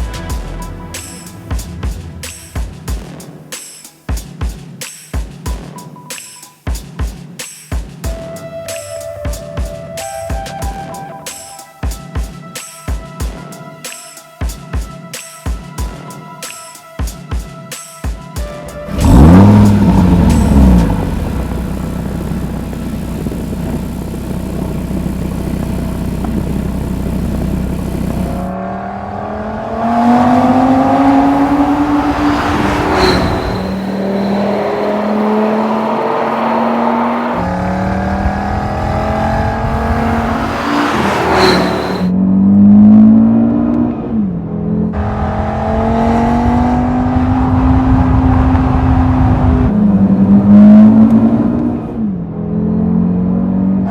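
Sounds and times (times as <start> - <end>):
car engine accelerating: 18.8 - 53.9.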